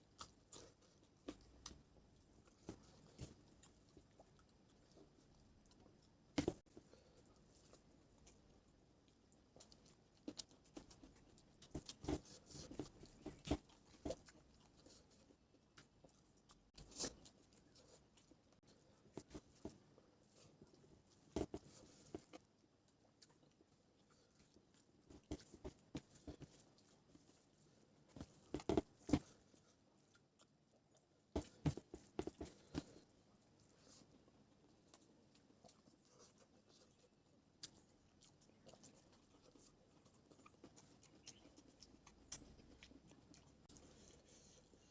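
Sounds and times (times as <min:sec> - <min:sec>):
chewing with wet smacks: 0:00.0 - 0:44.9
person chewing with mouth clicks: 0:34.8 - 0:44.9.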